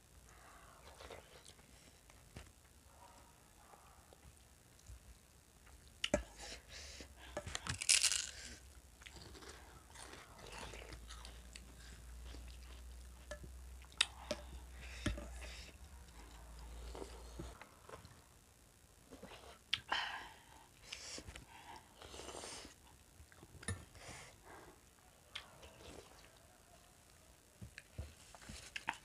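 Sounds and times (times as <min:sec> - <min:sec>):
chewing and crunching snacks: 0:00.3 - 0:02.5, 0:07.2 - 0:18.3, 0:27.6 - 0:29.0.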